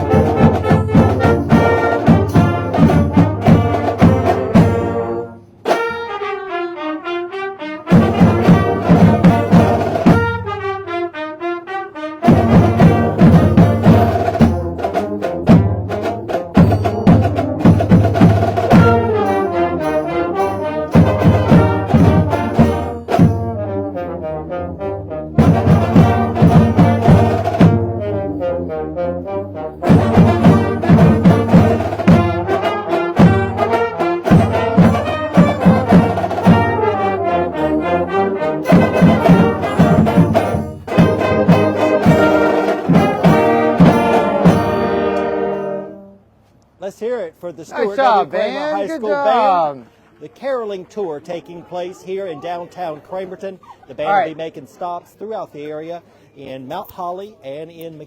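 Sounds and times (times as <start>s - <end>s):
percussion beat: 0.0s - 6.3s, 7.9s - 10.7s, 12.2s - 23.8s, 25.4s - 28.1s, 29.8s - 37.2s, 38.6s - 45.9s
school band playing a carol: 0.0s - 46.3s
brass melody: 0.0s - 46.6s.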